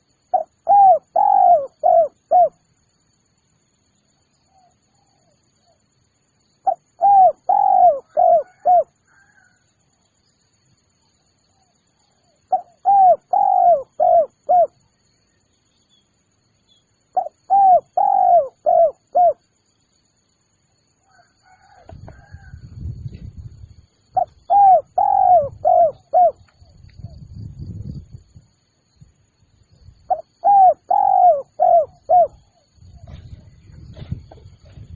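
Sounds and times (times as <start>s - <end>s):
dove cooing: 0.3s - 2.6s, 6.6s - 9.3s, 12.5s - 14.8s, 17.2s - 19.4s, 24.2s - 26.5s, 30.1s - 34.7s.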